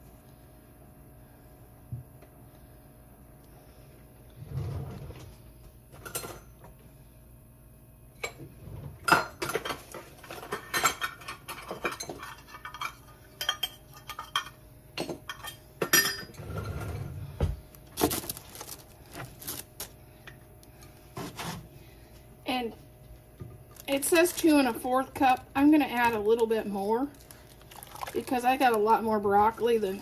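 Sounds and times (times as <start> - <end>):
utensils clinking against dishes: 9.0 - 17.0.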